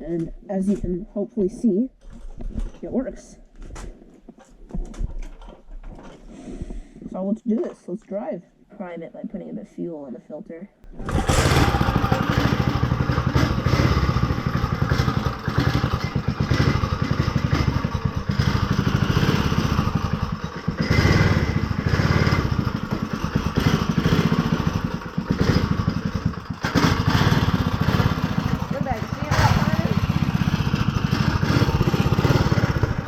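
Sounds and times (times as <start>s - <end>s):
go-kart engine revving: 10.9s - 33.0s.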